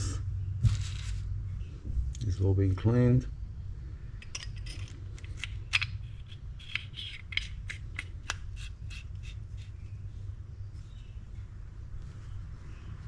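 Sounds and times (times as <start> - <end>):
scraping of small parts: 4.2 - 9.8.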